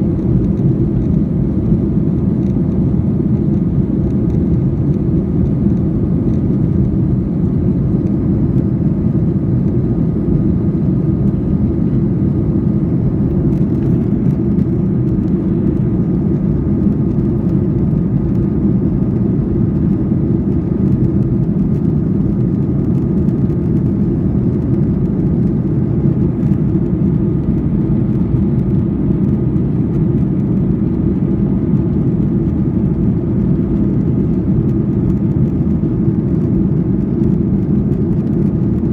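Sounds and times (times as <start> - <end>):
faint steady whine: 0.0 - 38.9
jet airliner rumble: 0.0 - 38.9.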